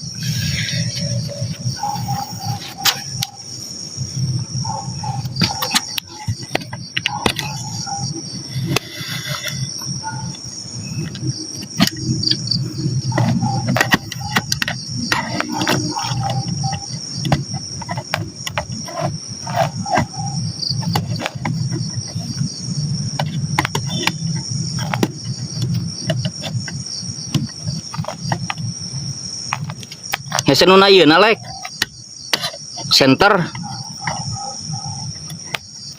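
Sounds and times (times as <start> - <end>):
crickets trilling: 0.0 - 35.9
sharp clicks and knocks: 5.1 - 8.1, 10.2 - 28.7, 29.4 - 30.6, 31.4 - 35.9.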